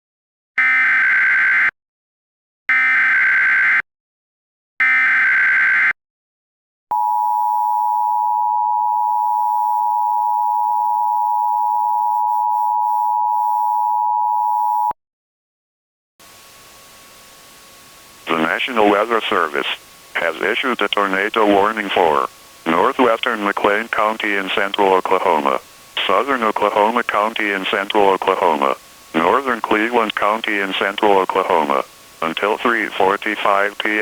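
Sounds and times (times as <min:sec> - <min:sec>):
faint hiss: 0:18.2 - 0:34.0
steady attention tone: 0:18.2 - 0:34.0.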